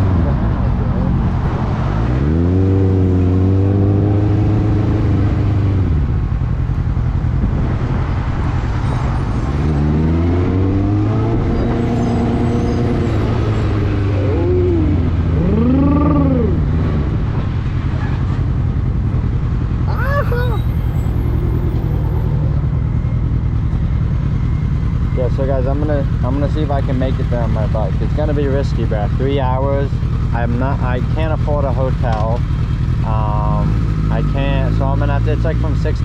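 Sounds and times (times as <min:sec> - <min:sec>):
motorcycle engine accelerating: 0:09.5 - 0:35.3.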